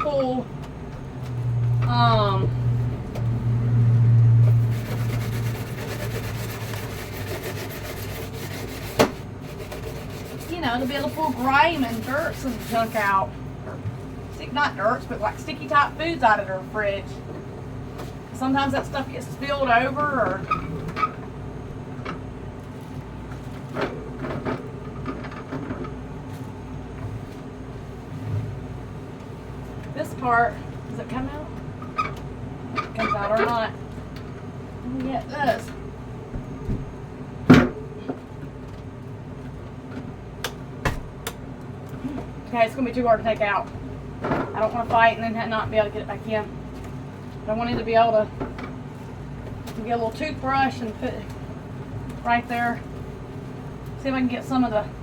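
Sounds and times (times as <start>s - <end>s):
steady low hum: 0.0s - 55.0s
wire scrubber rasping: 4.5s - 13.0s.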